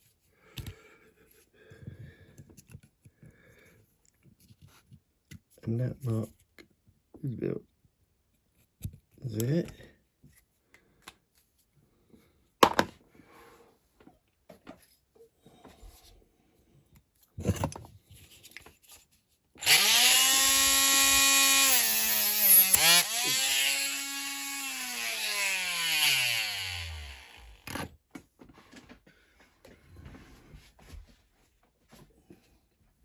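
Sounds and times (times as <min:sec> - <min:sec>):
mini drill whining: 0:19.6 - 0:27.9.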